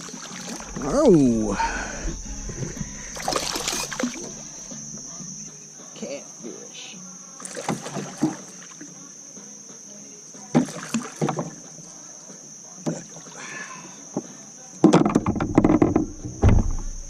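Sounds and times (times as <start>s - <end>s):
water splashing against kayak: 0.0s - 4.8s, 7.4s - 8.8s, 10.5s - 11.6s
high insect drone: 0.0s - 17.0s.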